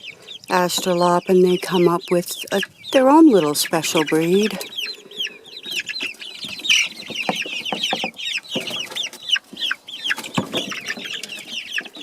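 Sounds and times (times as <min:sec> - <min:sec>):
chicks peeping: 0:00.0 - 0:12.0
knocks and scratches: 0:06.4 - 0:09.1, 0:10.2 - 0:12.0.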